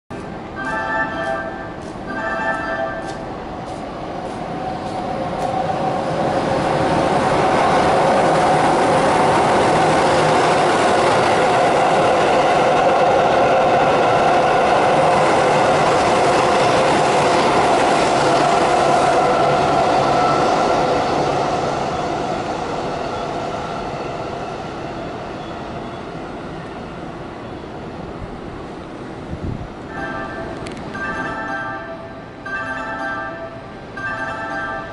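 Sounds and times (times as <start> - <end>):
train wheels on rails: 0.1 - 27.3.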